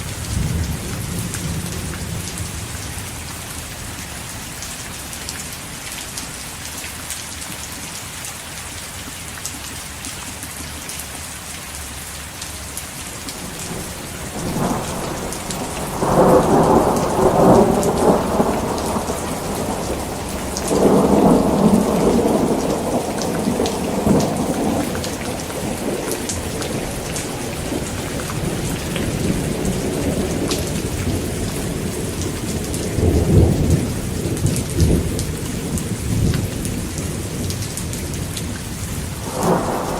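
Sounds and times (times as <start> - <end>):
thunder rumbling: 0.0 - 3.3, 13.3 - 38.3, 38.9 - 39.9
heavy rain: 0.0 - 39.9.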